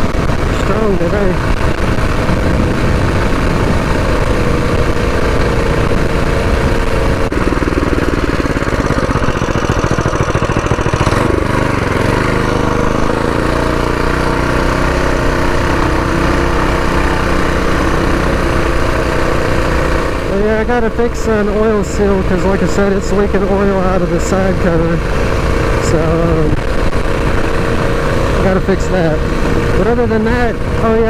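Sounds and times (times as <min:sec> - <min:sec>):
mini bike engine running: 0:00.0 - 0:31.0
wind noise on microphone: 0:00.0 - 0:31.0.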